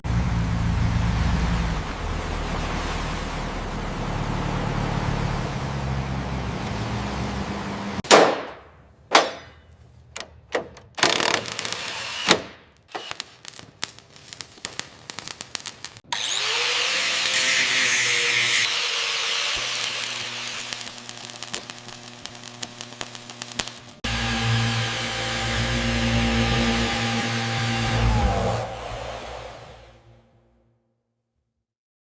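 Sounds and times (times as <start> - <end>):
sharp knocks and clanks: 8.0 - 11.4
power tool running: 11.0 - 13.2, 16.1 - 30.1.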